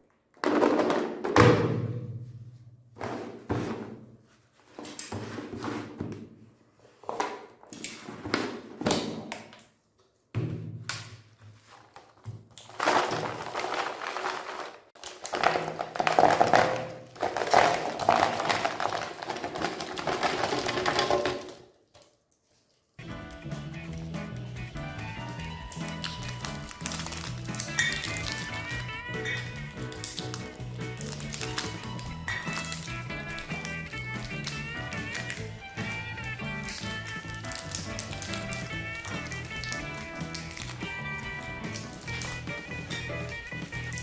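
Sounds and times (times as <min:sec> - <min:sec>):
grinder crunching and grinding: 0:12.6 - 0:21.6, 0:25.5 - 0:44.0
meat grinder thunks and knocks: 0:15.2 - 0:21.6.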